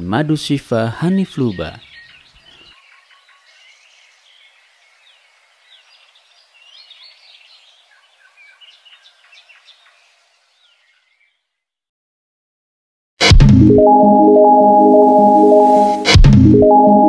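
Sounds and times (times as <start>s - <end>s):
steady outdoor hiss: 0.0s - 11.0s
faint bird chirps: 1.0s - 11.6s.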